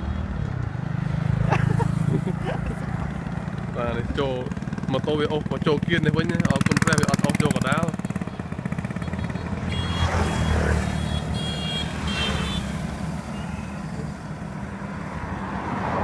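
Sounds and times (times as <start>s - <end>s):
road and wind noise: 0.0s - 16.0s
motorbike engine running: 2.2s - 13.4s.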